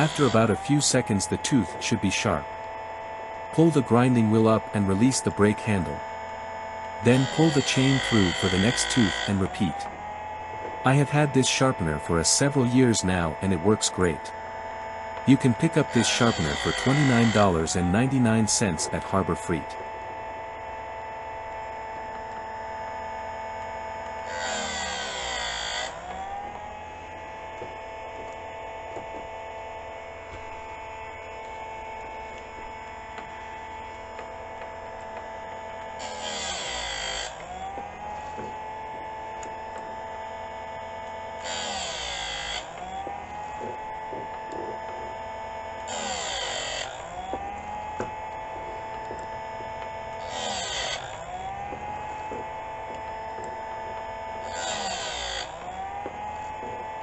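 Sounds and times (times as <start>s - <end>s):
grinding wheel rasping on chain: 0.0s - 0.9s, 7.0s - 9.4s, 15.2s - 17.8s, 24.2s - 26.0s, 36.0s - 37.5s, 41.4s - 45.0s, 45.8s - 57.0s
sharpener motor whining: 0.0s - 57.0s.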